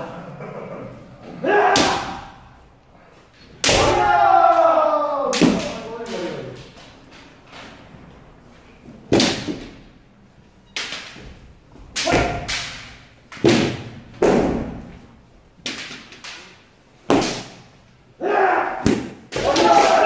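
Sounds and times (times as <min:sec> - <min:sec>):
bamboo sword hitting armour: 0:01.6 - 0:02.3, 0:03.6 - 0:04.6, 0:12.0 - 0:14.9, 0:17.1 - 0:17.6, 0:18.8 - 0:20.0.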